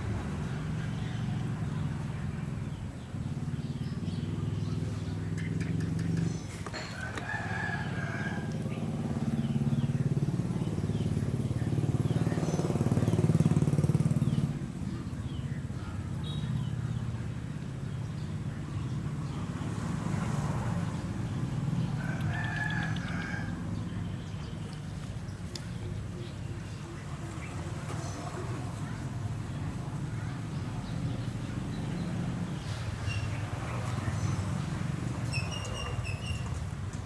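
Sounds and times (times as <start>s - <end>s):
rooster crowing: 6.8s - 8.6s, 22.0s - 23.6s.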